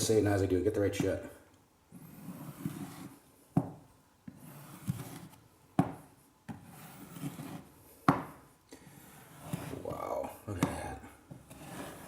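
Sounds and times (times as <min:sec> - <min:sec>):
scraper rasping on wood floor: 0:01.9 - 0:03.3, 0:04.2 - 0:12.0.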